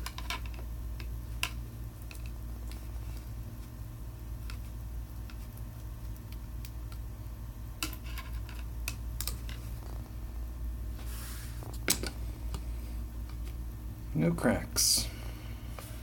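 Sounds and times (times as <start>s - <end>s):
scraping hiss: 11.0s - 11.8s.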